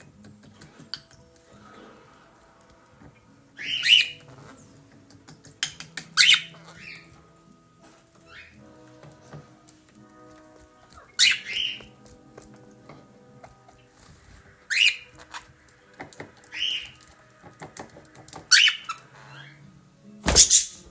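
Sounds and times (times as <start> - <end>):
budgerigar chirping calls: 3.6 - 4.3, 6.2 - 7.1, 11.1 - 11.9, 14.7 - 15.1, 16.5 - 17.0.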